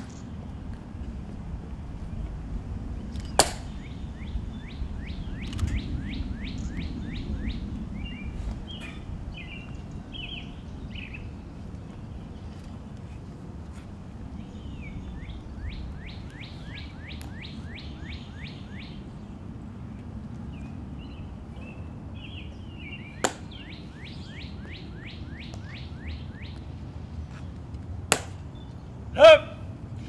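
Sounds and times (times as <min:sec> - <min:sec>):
low background noise: 0:00.0 - 0:30.0
songbird whistling: 0:03.2 - 0:11.3, 0:14.5 - 0:19.0, 0:21.1 - 0:26.6.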